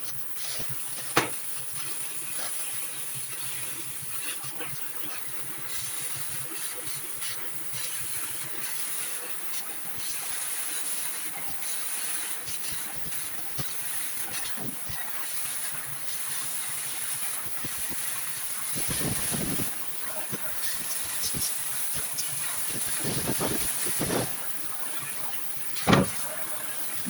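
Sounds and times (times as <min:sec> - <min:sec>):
light clicks and knocks: 0:01.0 - 0:01.4, 0:25.8 - 0:26.4.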